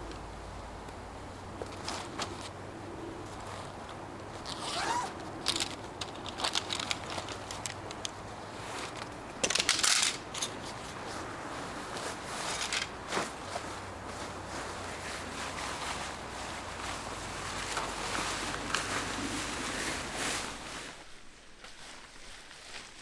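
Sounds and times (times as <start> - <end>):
crunching and rustling: 3.2 - 23.0.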